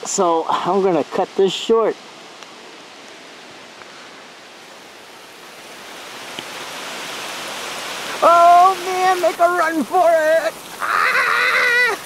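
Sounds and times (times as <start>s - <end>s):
rain falling on leaves: 0.0s - 12.0s.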